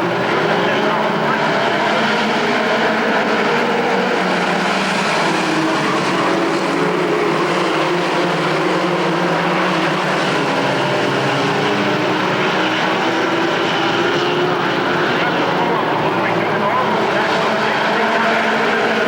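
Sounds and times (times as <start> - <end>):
racing engines droning: 0.0 - 19.0.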